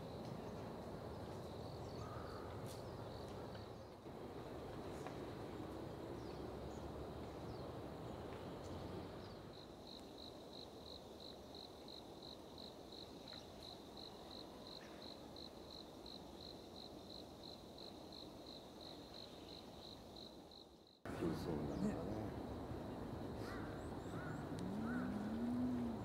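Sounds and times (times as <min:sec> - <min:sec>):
faint outdoor background noise: 0:00.0 - 0:26.0
insect chirping: 0:06.2 - 0:26.0.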